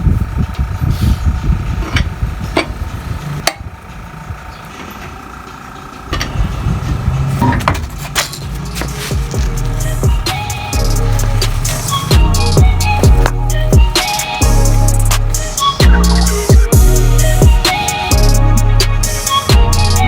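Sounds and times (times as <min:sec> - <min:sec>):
low rumble: 0:06.1 - 0:19.8.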